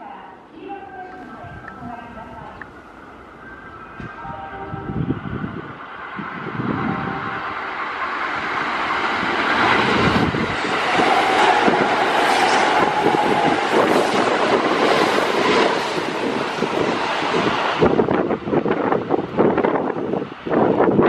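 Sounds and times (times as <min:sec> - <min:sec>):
steady high tone: 0:00.0 - 0:08.4
train wheels rushing on rail: 0:01.2 - 0:21.0.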